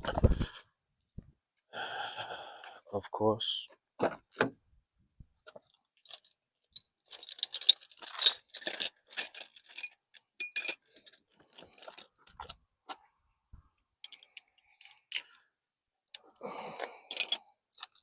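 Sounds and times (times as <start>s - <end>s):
small metal objects clinking: 5.8s - 12.5s, 17.1s - 18.0s.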